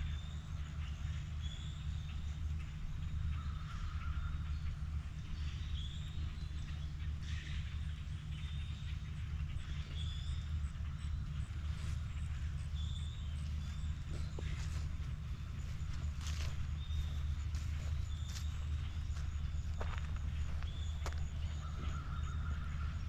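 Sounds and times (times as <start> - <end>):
steady low rumble: 0.0 - 23.0
footsteps outdoors: 11.2 - 23.0.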